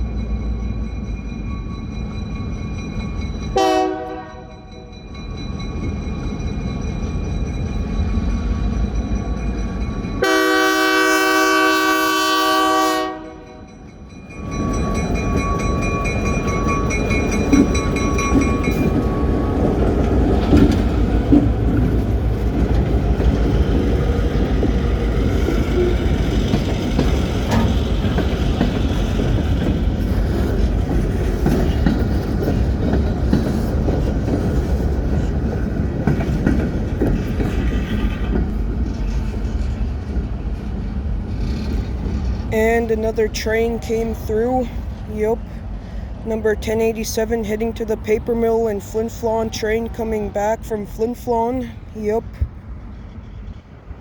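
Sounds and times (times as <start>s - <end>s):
train rolling past: 0.0s - 54.0s
train horn blast: 3.6s - 4.9s, 10.2s - 13.7s
wheels clicking on rail joints: 13.4s - 54.0s.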